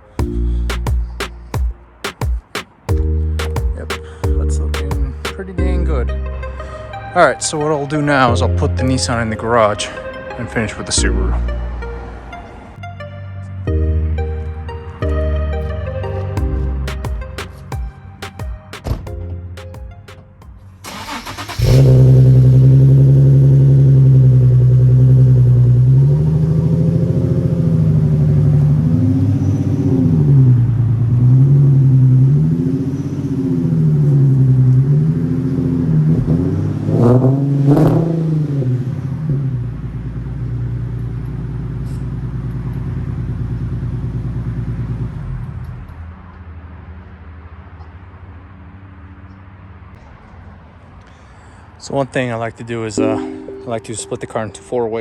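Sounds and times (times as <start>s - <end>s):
car engine idling: 0.0s - 7.6s, 14.7s - 29.4s, 38.6s - 46.0s
car engine cranking and starting: 18.8s - 46.0s
car engine revving: 20.8s - 45.8s.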